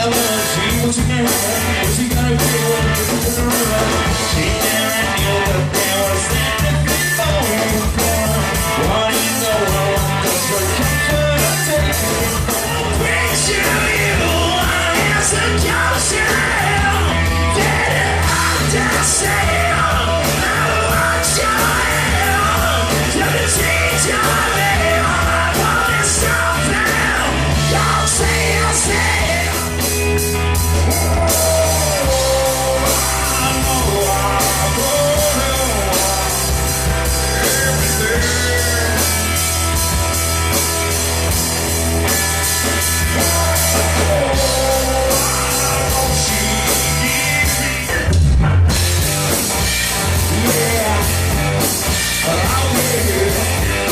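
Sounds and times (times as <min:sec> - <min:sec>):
rock band playing: 0:00.0 - 0:53.9.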